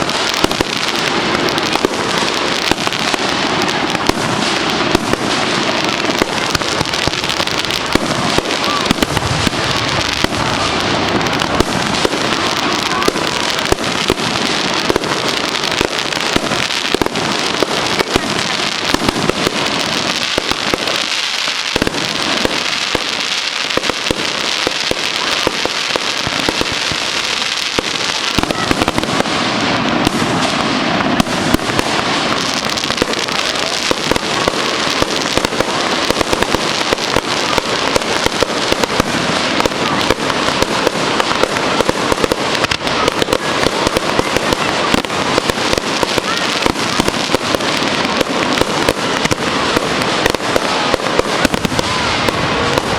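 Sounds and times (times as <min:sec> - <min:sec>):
fireworks crackling and popping: 0:00.0 - 0:52.9.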